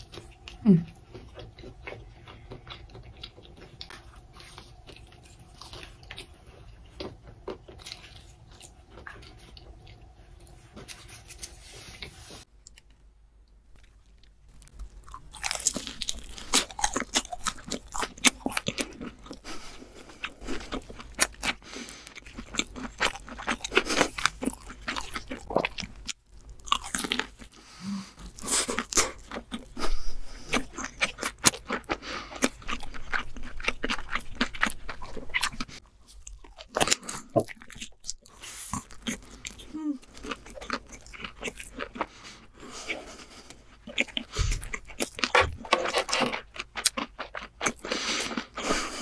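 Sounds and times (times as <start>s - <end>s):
crisp crunching and chewing: 13.7s - 49.0s.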